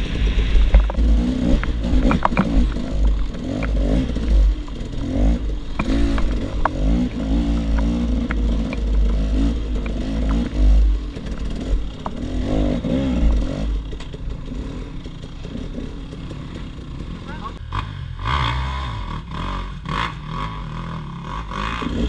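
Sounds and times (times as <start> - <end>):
motorbike engine revving: 0.0 - 22.0
rocks clacking and scraping: 0.4 - 14.5.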